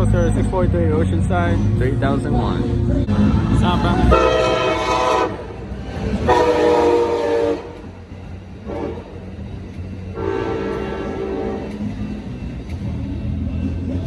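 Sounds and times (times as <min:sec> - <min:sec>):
low rumble of moving train: 0:00.0 - 0:14.0
train horn blasts: 0:04.1 - 0:05.6, 0:06.2 - 0:08.0, 0:08.6 - 0:09.3, 0:10.1 - 0:12.0.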